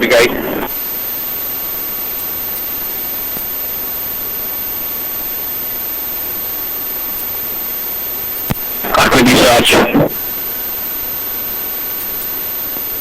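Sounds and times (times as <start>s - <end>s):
helicopter in flight through intercom: 0.0s - 0.7s, 8.8s - 10.2s.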